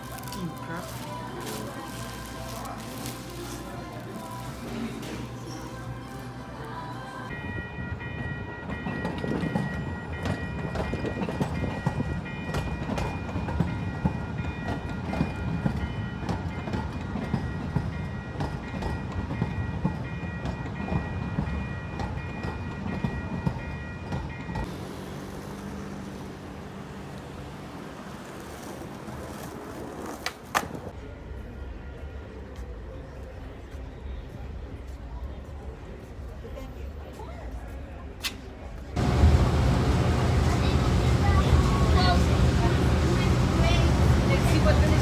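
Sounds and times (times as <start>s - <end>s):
vehicle engine rumbling: 24.6s - 29.6s, 39.0s - 45.0s.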